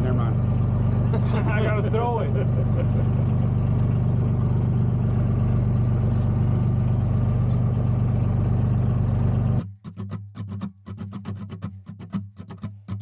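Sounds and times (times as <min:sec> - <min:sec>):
boat engine running: 0:00.0 - 0:09.6.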